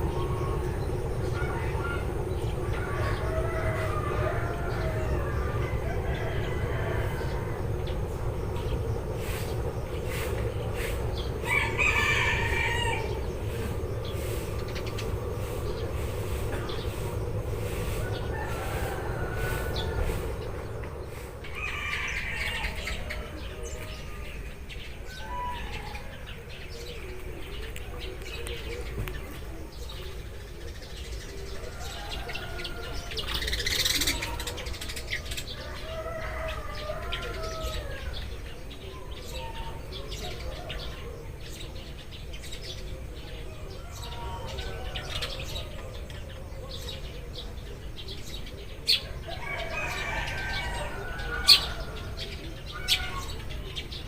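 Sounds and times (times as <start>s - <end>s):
steady low rumble: 0.0s - 25.1s
sparrows chirping: 0.0s - 54.0s.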